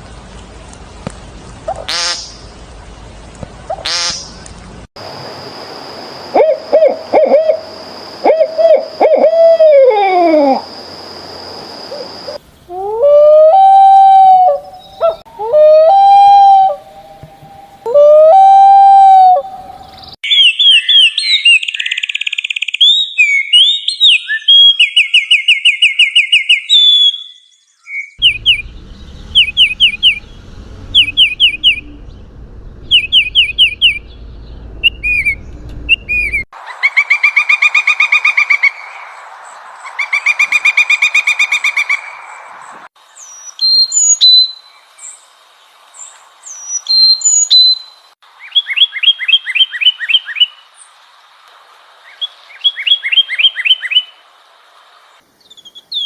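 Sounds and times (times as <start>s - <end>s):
rising bird calls: 6.3s - 10.7s, 11.9s - 39.2s
down-slurred whistled bird notes: 19.8s - 32.2s, 32.8s - 38.9s, 46.5s - 47.9s
fast varied bird song: 19.8s - 39.0s
harsh repeated bird notes: 28.1s - 39.0s.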